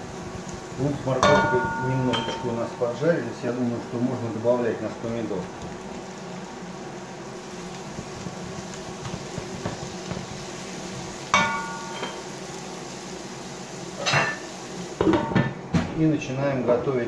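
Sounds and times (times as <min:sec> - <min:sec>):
vegetables sizzling in oil: 0:00.0 - 0:17.0
metallic clink: 0:01.2 - 0:02.5, 0:11.4 - 0:12.2
spatula knocking: 0:11.4 - 0:12.2.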